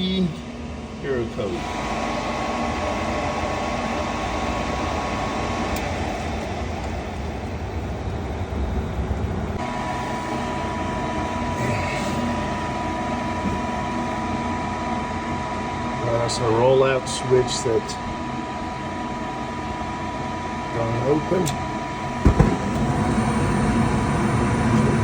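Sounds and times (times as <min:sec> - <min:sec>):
furnace fan motor running: 0:00.0 - 0:25.0
thin high whine: 0:09.6 - 0:25.0.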